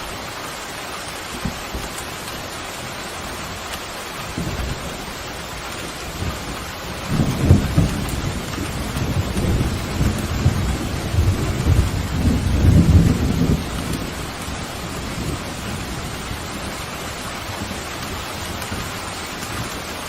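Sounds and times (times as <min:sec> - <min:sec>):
pouring rain: 0:00.0 - 0:20.0
thunder rumbling: 0:04.2 - 0:20.0.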